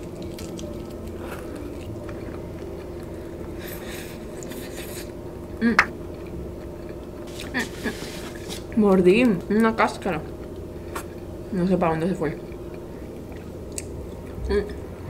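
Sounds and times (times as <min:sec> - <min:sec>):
person chewing food: 0:00.0 - 0:05.2, 0:12.4 - 0:14.5
low background hum: 0:00.0 - 0:15.0.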